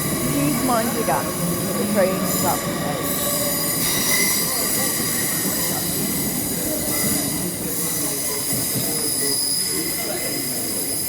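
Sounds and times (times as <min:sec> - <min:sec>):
train rumble: 0:00.0 - 0:11.0
train wheels squealing: 0:02.2 - 0:11.0.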